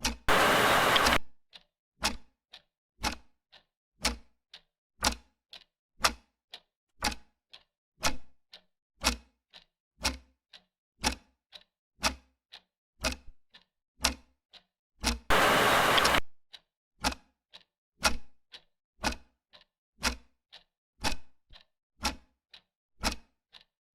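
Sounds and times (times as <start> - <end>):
clock ticking: 0.0 - 2.2, 3.0 - 6.2, 8.5 - 14.2, 15.0 - 16.2, 18.5 - 23.7.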